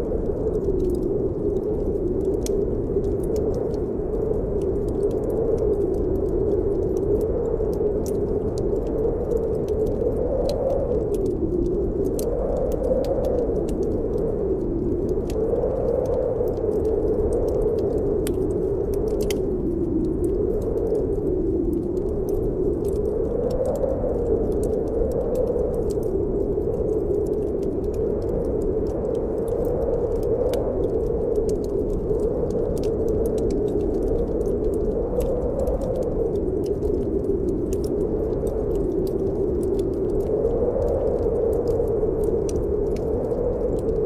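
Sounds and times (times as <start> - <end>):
howling snowstorm wind: 0.0 - 44.0
wood fire crackling: 0.0 - 44.0.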